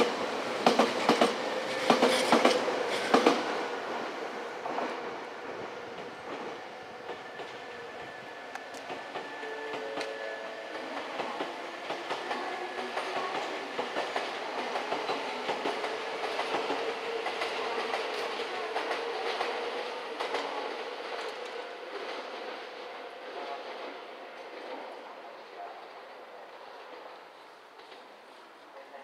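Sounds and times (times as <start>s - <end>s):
train wheels clattering over rail joints: 0.0s - 3.6s
steady train whine: 0.0s - 29.0s.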